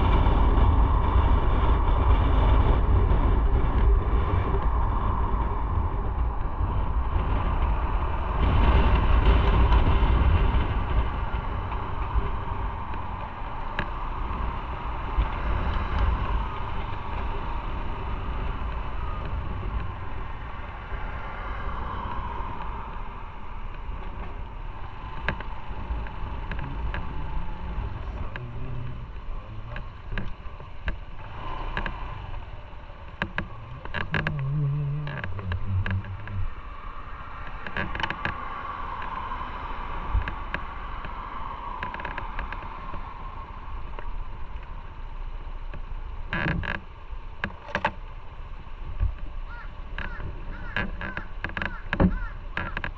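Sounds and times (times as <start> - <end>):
motorcycle low rumble: 0.0 - 52.9
road and wind noise: 0.0 - 52.9.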